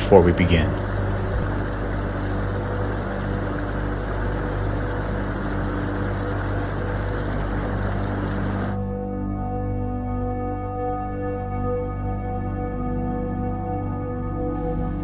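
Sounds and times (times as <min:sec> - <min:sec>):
steady rushing noise: 0:00.0 - 0:08.8
ambient music drone: 0:00.0 - 0:15.0.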